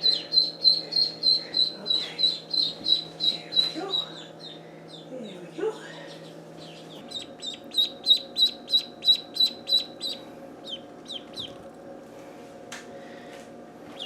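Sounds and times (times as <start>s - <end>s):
ducklings peeping: 0.0s - 5.4s, 6.0s - 11.7s.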